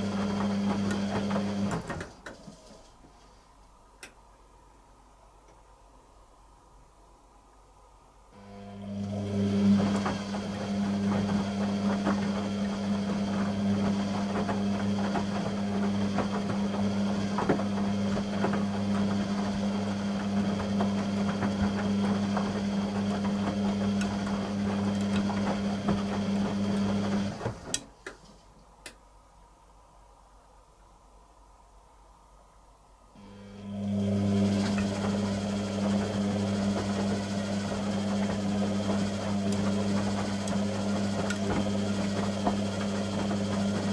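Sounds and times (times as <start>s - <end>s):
washing machine humming: 0.0s - 7.2s, 7.8s - 28.0s, 33.2s - 43.9s.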